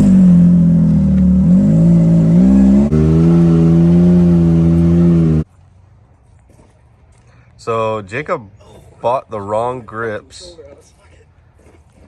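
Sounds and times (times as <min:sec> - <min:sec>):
engine revving high: 0:00.0 - 0:05.5.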